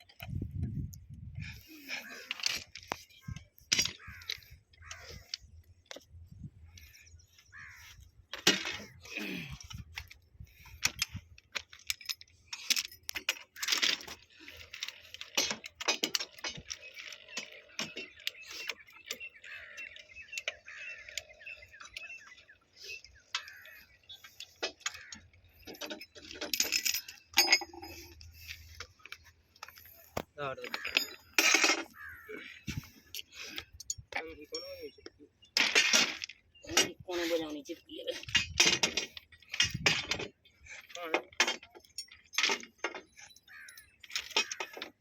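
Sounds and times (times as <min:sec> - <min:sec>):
metallic clinks of hand tools: 0:25.6 - 0:28.3.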